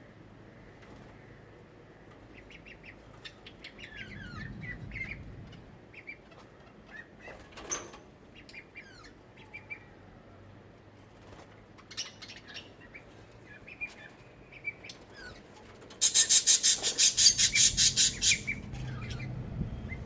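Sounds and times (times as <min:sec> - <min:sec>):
birds chirping: 0:00.5 - 0:07.4, 0:11.8 - 0:20.0.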